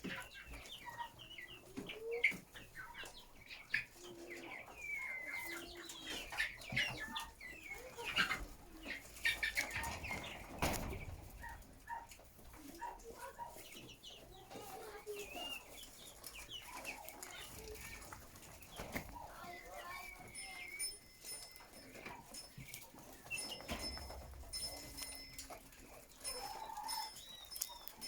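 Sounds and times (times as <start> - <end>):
chickens clucking and calling: 0.0 - 28.0
rustling: 6.2 - 28.0.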